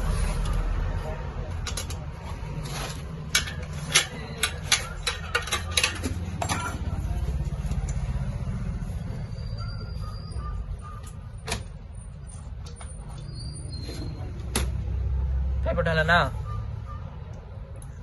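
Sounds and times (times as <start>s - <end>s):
metal tools clinking on metal: 1.5s - 7.1s.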